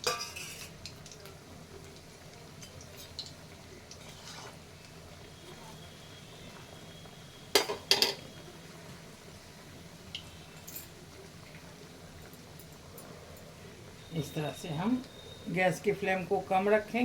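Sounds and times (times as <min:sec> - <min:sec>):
metal utensils clinking on pan: 0:00.0 - 0:01.3, 0:07.5 - 0:08.3, 0:10.1 - 0:11.0
faint steady hiss: 0:00.0 - 0:17.0.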